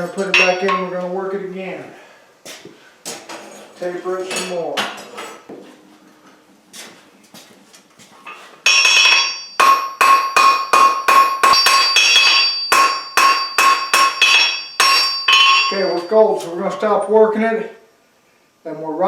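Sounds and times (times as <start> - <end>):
hammer blows on an anvil: 0.2 - 1.0, 8.7 - 16.2
faint metal clinks: 14.2 - 16.2.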